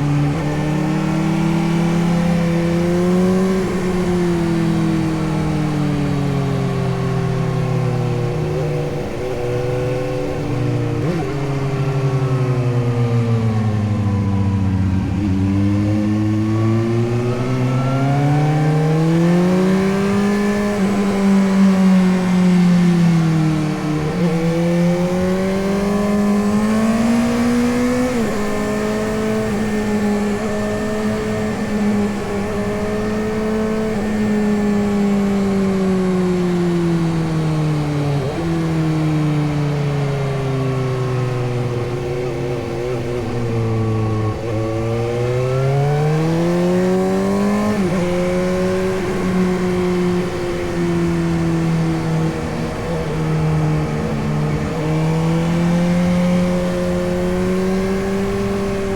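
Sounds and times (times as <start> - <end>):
gear changes: 0.0 - 58.9
motorcycle engine revving: 0.0 - 58.9.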